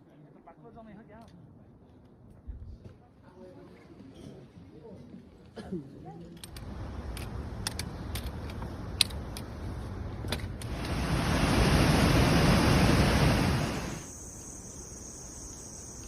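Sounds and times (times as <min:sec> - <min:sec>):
loud even rushing noise: 0:10.6 - 0:14.1
insects chirring: 0:10.7 - 0:16.0.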